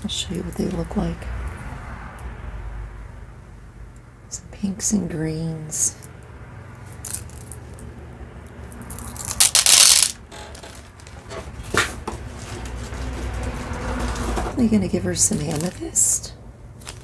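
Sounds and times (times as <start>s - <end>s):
beads clattering: 6.8s - 7.8s, 8.7s - 11.2s
beads clicking: 6.8s - 11.1s.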